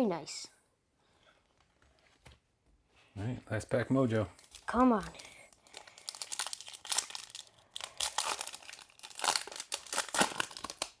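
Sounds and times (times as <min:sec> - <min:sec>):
wrapper being torn and crinkled: 0:04.4 - 0:11.0.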